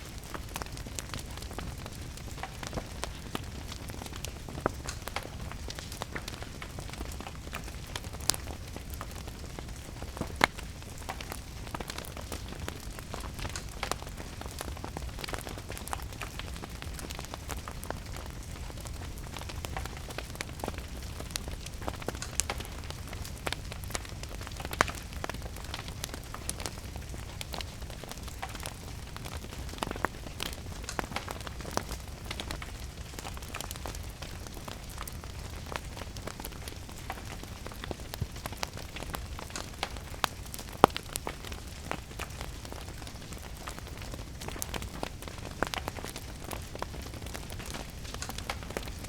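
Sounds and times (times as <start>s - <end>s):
rain pattering: 0.0s - 49.0s
wood fire crackling and popping: 0.0s - 49.0s.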